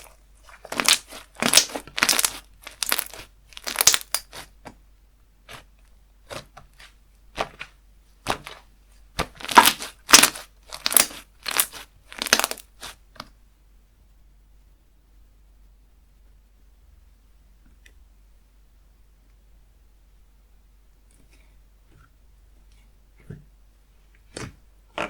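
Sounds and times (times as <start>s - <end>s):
slime crackling and popping: 0.0s - 4.5s, 9.2s - 13.0s.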